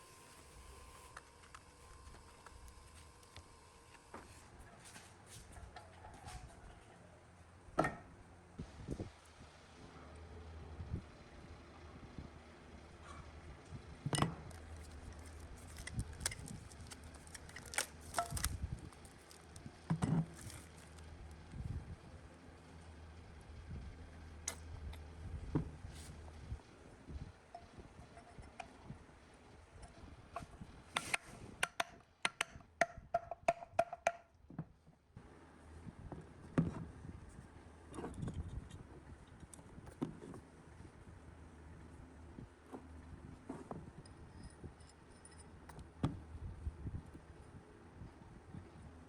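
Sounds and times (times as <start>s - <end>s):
clicks and knocks of hand work: 29.8s - 34.7s.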